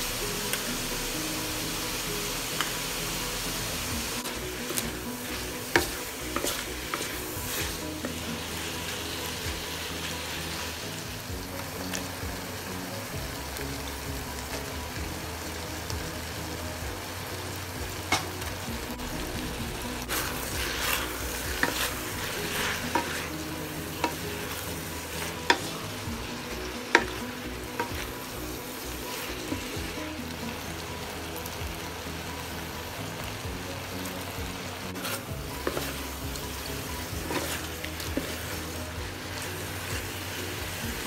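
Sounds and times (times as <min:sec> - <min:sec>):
vegetables sizzling in a wok: 0:00.0 - 0:41.0
spatula scraping and knocking pan: 0:04.2 - 0:09.6, 0:20.0 - 0:28.1, 0:37.1 - 0:40.1.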